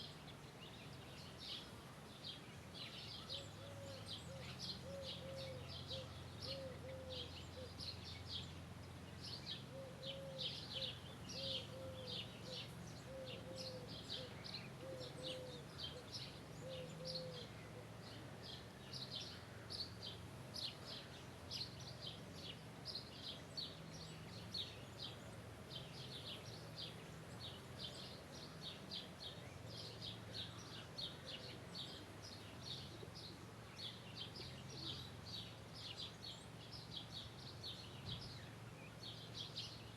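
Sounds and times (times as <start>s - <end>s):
birds chirping chorus: 0.0s - 39.9s.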